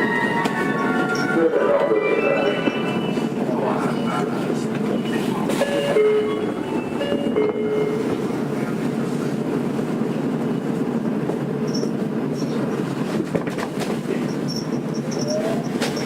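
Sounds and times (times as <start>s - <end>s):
train wheels rumbling on rail: 0.0s - 1.5s, 2.5s - 16.0s.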